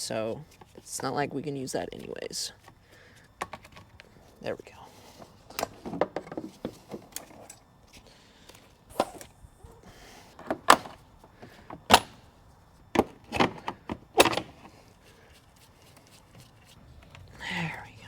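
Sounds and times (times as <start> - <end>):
plastic parts clunking and snapping: 2.6 - 4.1, 5.1 - 9.4, 10.2 - 17.4.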